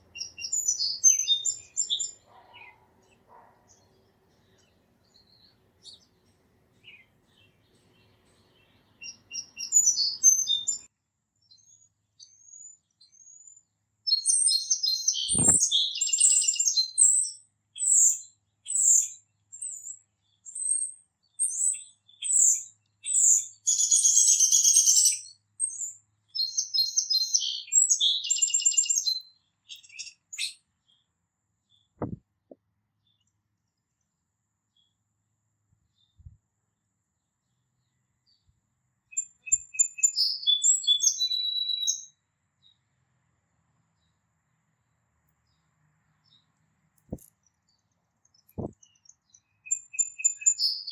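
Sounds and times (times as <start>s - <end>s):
songbirds chirping: 0.0s - 50.9s
dull thump: 32.0s - 32.2s.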